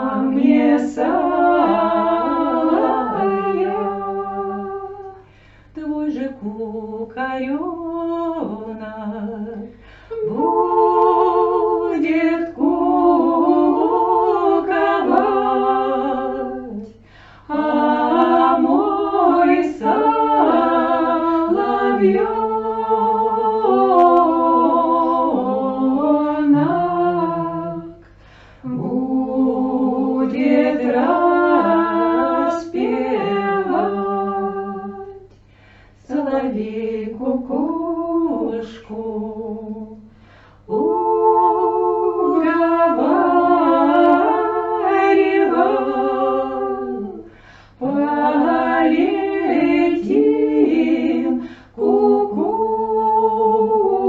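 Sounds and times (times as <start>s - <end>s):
women singing a cappella harmony: 0.0s - 54.0s.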